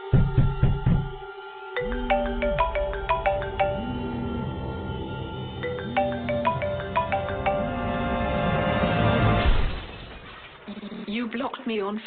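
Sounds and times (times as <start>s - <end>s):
xylophone-like mallet melody: 1.8s - 4.5s, 5.6s - 8.3s.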